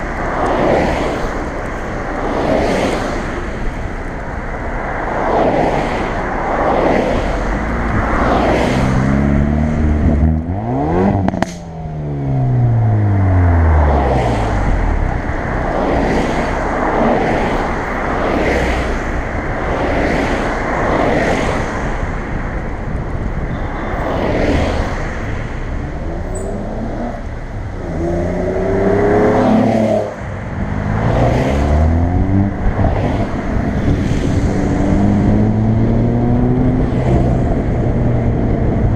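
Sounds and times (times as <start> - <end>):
car engine accelerating: 6.4 - 22.1, 24.3 - 38.9
sharp crack: 11.3 - 11.7.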